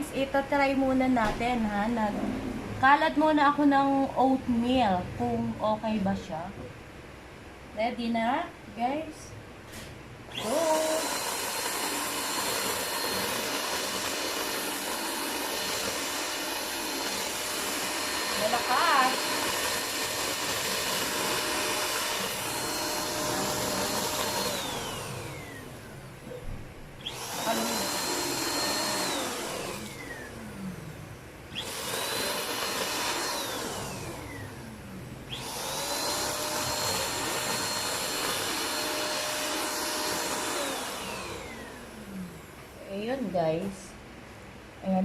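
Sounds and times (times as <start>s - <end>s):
vacuum cleaner motor whining: 10.3s - 43.6s.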